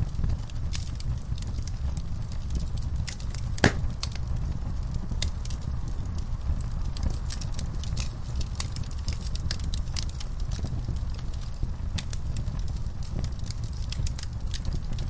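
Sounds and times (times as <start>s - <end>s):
low rumble: 0.0s - 5.0s
wood fire crackling: 0.0s - 15.0s.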